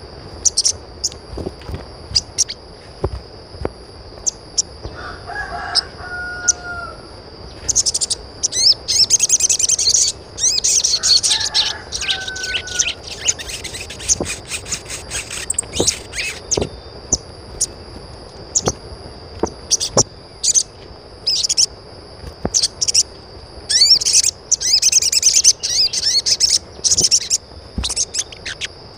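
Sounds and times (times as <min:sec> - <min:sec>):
birds chirping: 0:00.0 - 0:03.0, 0:03.9 - 0:28.9
bird pitched calls: 0:00.4 - 0:00.8, 0:04.2 - 0:17.8, 0:19.7 - 0:21.7, 0:23.7 - 0:28.8.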